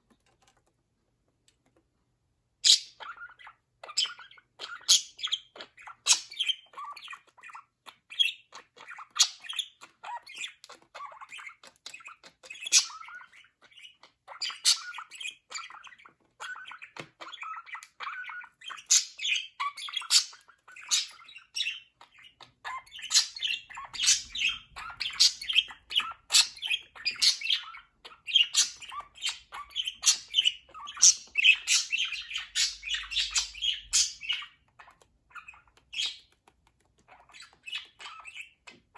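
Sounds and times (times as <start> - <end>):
budgerigars chattering: 2.6 - 36.3, 37.1 - 38.9.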